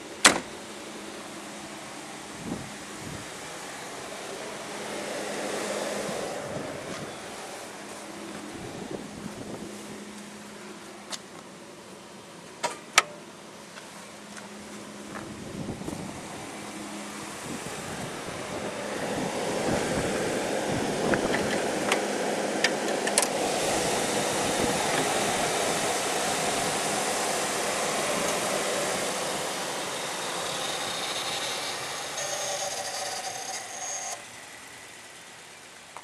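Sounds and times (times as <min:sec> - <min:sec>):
car engine running: 0:00.0 - 0:12.6, 0:13.3 - 0:36.0
electronic chime tone: 0:32.1 - 0:34.2.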